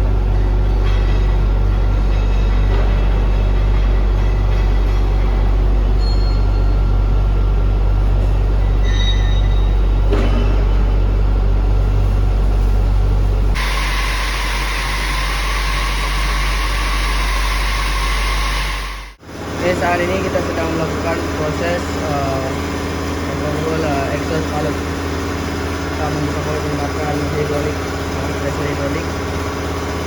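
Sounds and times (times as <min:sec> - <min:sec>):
industrial machinery low hum: 0:00.0 - 0:30.0
hissing machine rumble: 0:11.3 - 0:30.0.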